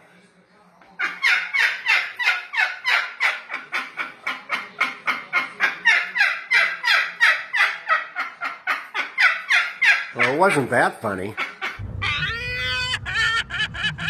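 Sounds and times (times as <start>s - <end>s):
parrot mimicking laughter: 11.3s - 14.0s.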